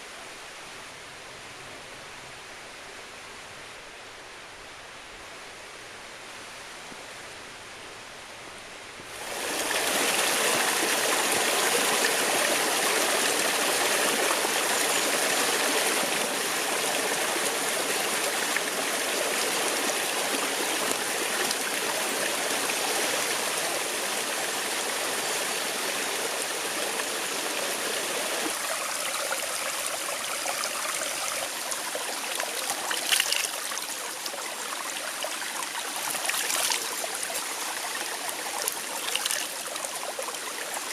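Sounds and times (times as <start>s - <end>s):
stream water rushing: 9.1s - 40.9s.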